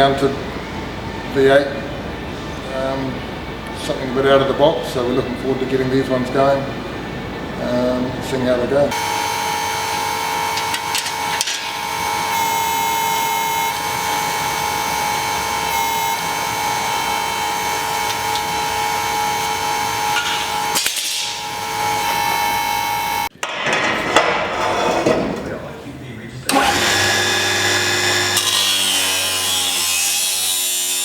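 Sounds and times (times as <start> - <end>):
power tool whining: 8.9 - 23.3, 26.5 - 31.0.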